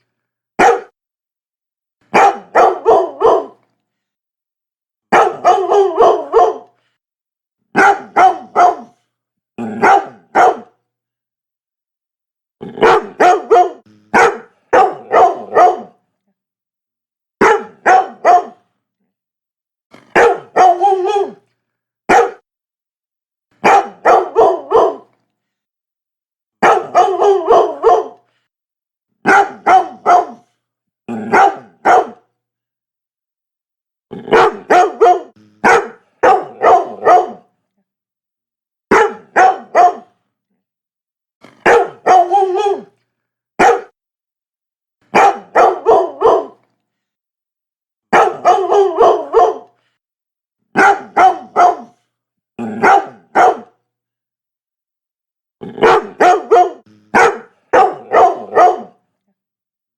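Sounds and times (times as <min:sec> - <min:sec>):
dog barking: 0:00.6 - 0:01.0, 0:02.1 - 0:03.6, 0:05.1 - 0:06.8, 0:07.7 - 0:09.0, 0:09.6 - 0:10.8, 0:12.6 - 0:16.0, 0:17.4 - 0:18.6, 0:20.0 - 0:21.4, 0:22.1 - 0:22.4, 0:23.6 - 0:25.1, 0:26.6 - 0:28.2, 0:29.2 - 0:30.5, 0:31.2 - 0:32.3, 0:34.2 - 0:37.5, 0:38.9 - 0:40.2, 0:41.6 - 0:42.9, 0:43.6 - 0:44.0, 0:45.1 - 0:46.6, 0:48.1 - 0:49.8, 0:50.7 - 0:52.0, 0:52.6 - 0:53.8, 0:55.7 - 0:59.0.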